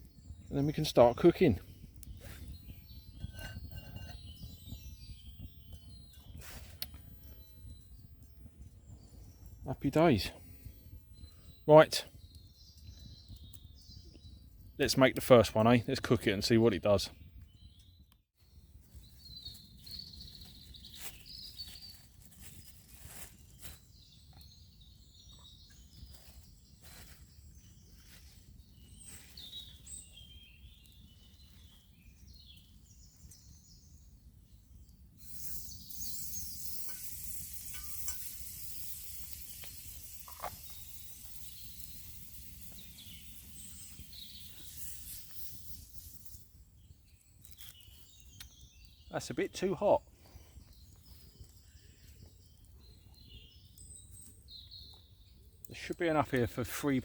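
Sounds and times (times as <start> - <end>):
batter sizzling in a skillet: 35.2 - 46.6.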